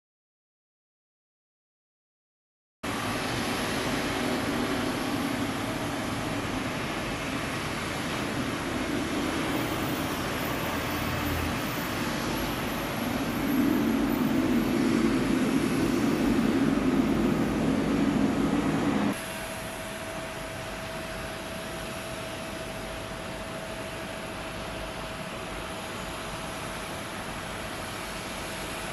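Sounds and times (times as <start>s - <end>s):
faint high whine: 2.9s - 28.9s
jet engines rumbling: 2.9s - 28.9s
humming tone: 8.2s - 19.2s.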